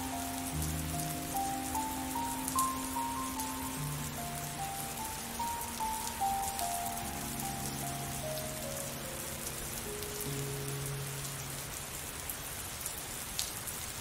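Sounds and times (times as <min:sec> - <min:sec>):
soft slow melody: 0:00.0 - 0:12.4
steady rain falling: 0:00.0 - 0:14.0.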